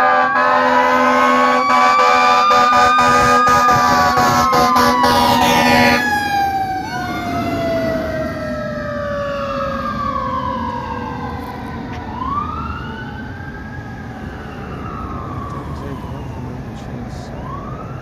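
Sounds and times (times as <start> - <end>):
horn blast: 0.0 - 6.1
siren wailing: 0.0 - 18.0.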